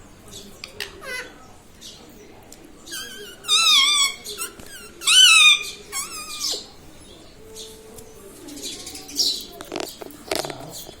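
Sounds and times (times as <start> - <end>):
parrot calling: 0.8 - 1.4, 2.9 - 6.8.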